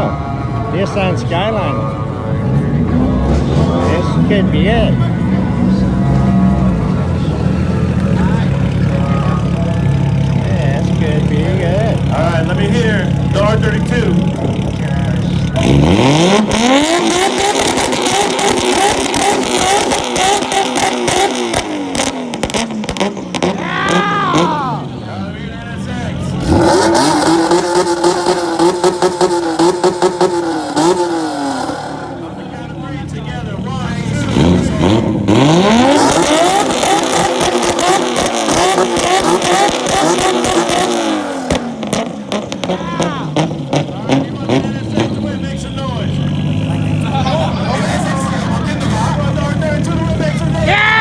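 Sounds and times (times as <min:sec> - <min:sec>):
car engine revving on limiter: 0:00.0 - 0:50.9
exhaust crackling pops: 0:16.3 - 0:23.6, 0:34.3 - 0:45.4.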